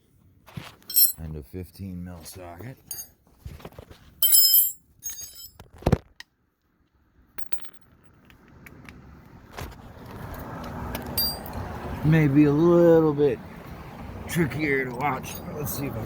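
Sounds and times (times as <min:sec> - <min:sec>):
metal hand tools clinking: 0:00.8 - 0:01.2, 0:02.8 - 0:03.1, 0:04.2 - 0:05.6, 0:11.1 - 0:11.6.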